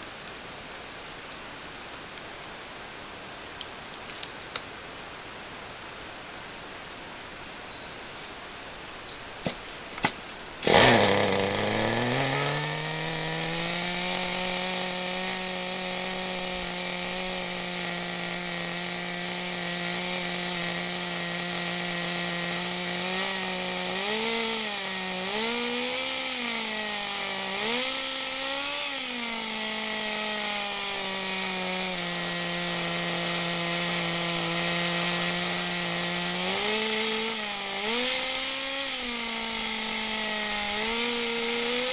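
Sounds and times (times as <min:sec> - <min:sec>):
small nitro engine buzzing: 0:10.6 - 0:41.9.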